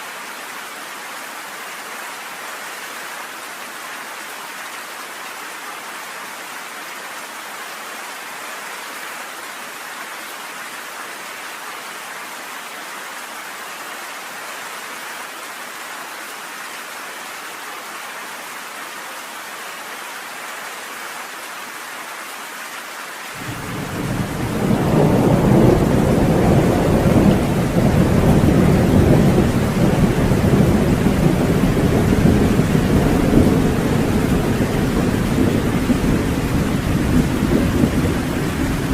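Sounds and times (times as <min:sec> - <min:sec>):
steady rain hiss: 0:00.0 - 0:38.9
low thunder rumbling: 0:23.4 - 0:38.9.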